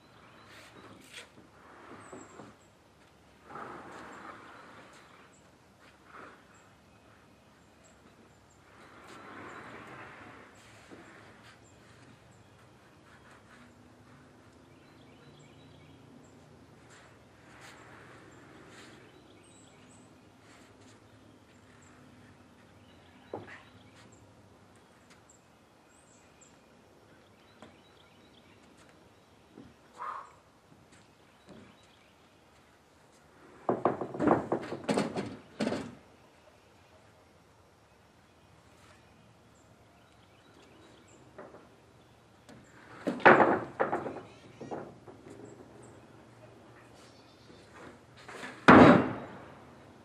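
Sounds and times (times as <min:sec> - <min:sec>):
loud thumps and scraping knocks: 0:33.5 - 0:36.0, 0:42.5 - 0:45.7, 0:47.8 - 0:49.6.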